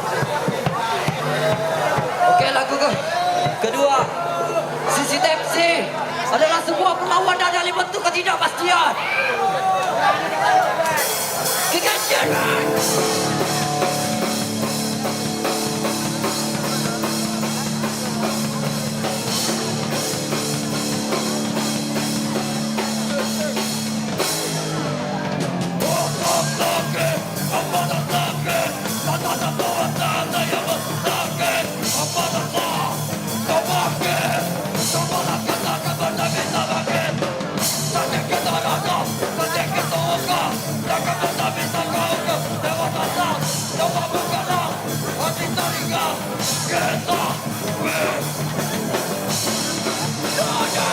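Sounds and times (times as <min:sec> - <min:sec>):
punk band playing loud: 0:00.0 - 0:50.9
ringing guitar notes: 0:12.2 - 0:24.2.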